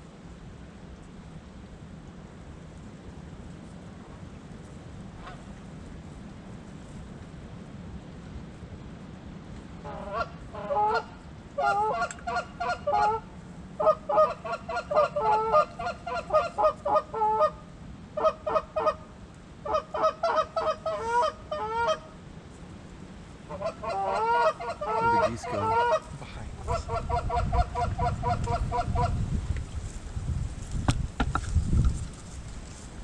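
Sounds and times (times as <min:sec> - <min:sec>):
geese honking: 0:09.9 - 0:13.2, 0:13.8 - 0:17.6, 0:19.7 - 0:22.1, 0:23.5 - 0:29.2.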